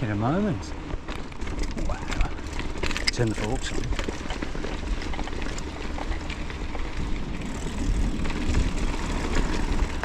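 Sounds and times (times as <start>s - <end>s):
bike tyres ticking and rattling: 0.0s - 10.0s
wind rumbling over microphone: 0.0s - 10.0s.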